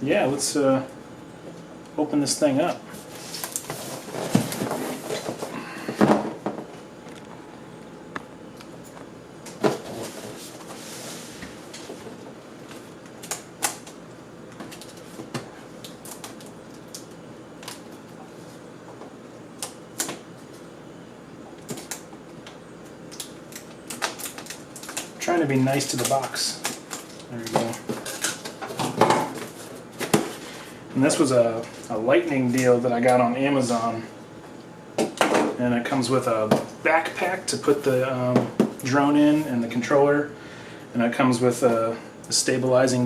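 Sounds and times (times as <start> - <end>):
cardboard packaging clicks and scrapes: 3.1 - 6.2.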